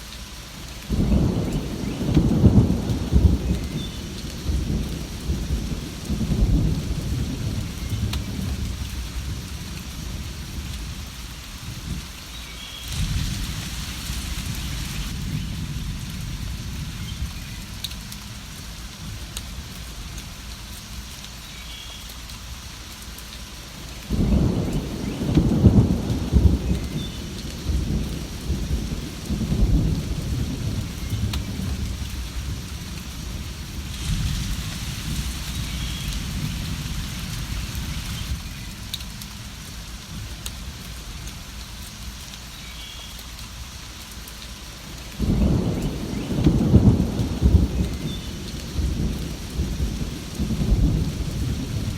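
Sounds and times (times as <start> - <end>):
steady rain: 0.0 - 51.9
rolling thunder: 0.9 - 11.0, 12.9 - 18.4, 24.1 - 39.2, 45.2 - 51.9.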